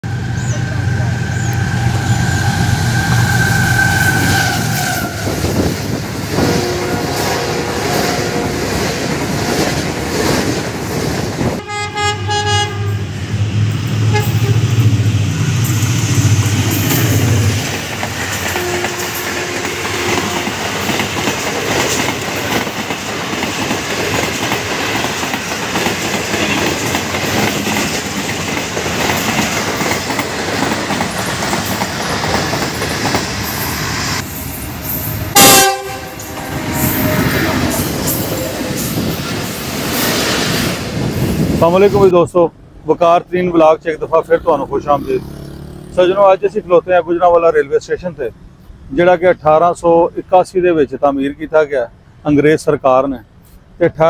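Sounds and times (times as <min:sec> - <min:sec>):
locomotive engine drone: 0:00.0 - 0:08.6
locomotive horn: 0:06.3 - 0:08.8, 0:11.6 - 0:13.2, 0:14.0 - 0:14.9, 0:18.5 - 0:20.7, 0:34.6 - 0:38.6
wheels clattering over rail joints: 0:15.7 - 0:33.7.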